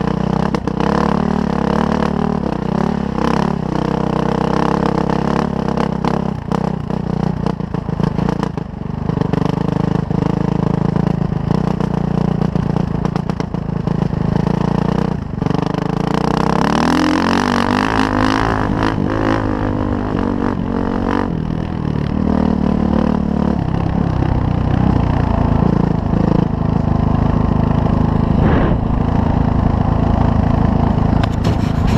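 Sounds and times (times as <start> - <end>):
dirt bike engine revving: 16.3 - 21.5, 27.2 - 31.9.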